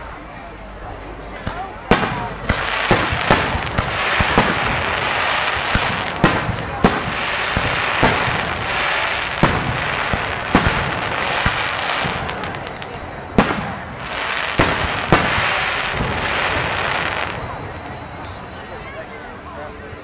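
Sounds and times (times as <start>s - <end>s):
continuous wash of noise: 0.0s - 20.0s
firework shells bursting: 1.4s - 17.4s.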